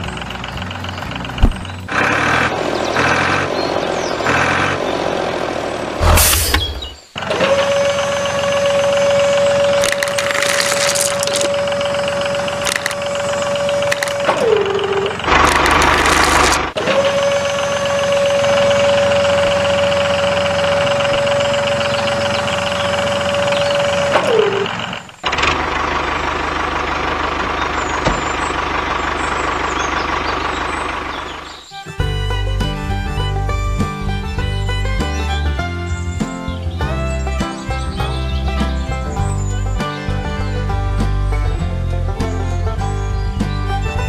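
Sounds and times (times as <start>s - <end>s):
rough noise: 6.0s - 7.1s, 8.9s - 17.0s
small motor whining: 6.1s - 25.7s.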